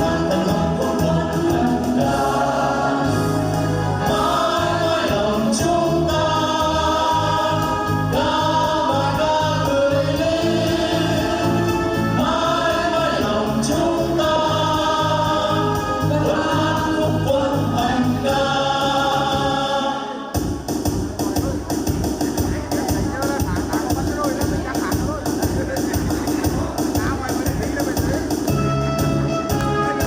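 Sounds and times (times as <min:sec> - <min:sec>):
group singing in unison: 0:00.0 - 0:20.5
backing track with steady beat: 0:00.0 - 0:30.0.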